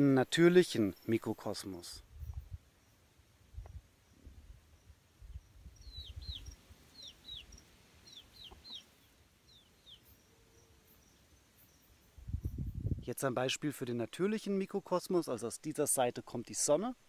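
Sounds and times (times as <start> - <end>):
bird chirping: 0.6 - 12.7.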